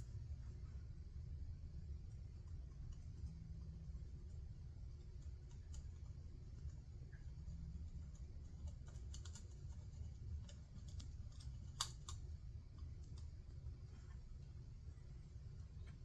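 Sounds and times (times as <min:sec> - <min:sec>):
low steady hum: 0:00.0 - 0:16.0
small clicks and taps at workbench: 0:05.0 - 0:14.2.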